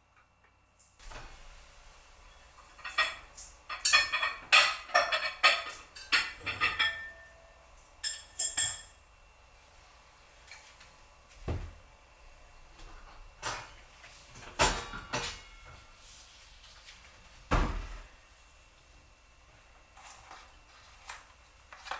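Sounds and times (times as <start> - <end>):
dishes and cutlery clinking: 2.6 - 9.0, 13.0 - 15.8.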